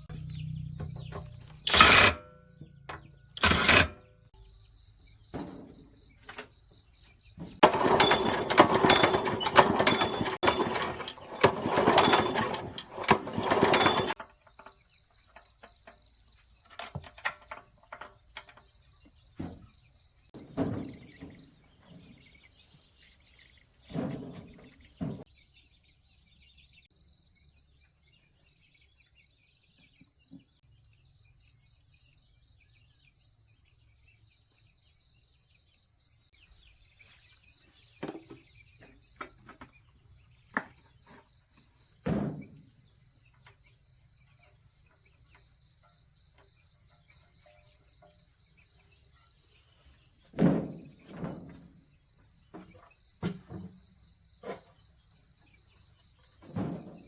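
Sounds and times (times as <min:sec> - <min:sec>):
knocks and clatters: 0:00.0 - 0:04.2, 0:05.2 - 0:22.6, 0:23.9 - 0:25.3, 0:38.0 - 0:42.8, 0:50.3 - 0:51.8, 0:56.3 - 0:57.0.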